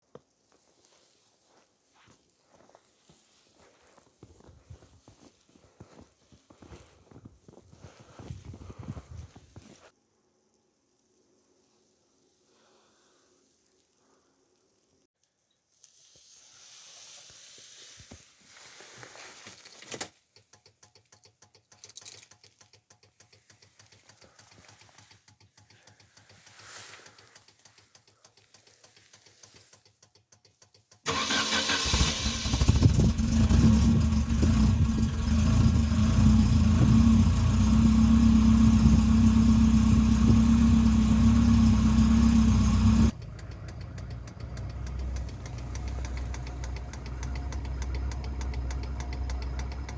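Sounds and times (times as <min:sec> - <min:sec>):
faint clicks: 0:20.3 - 0:31.0, 0:43.1 - 0:49.9
car engine starting and idling: 0:22.6 - 0:49.9.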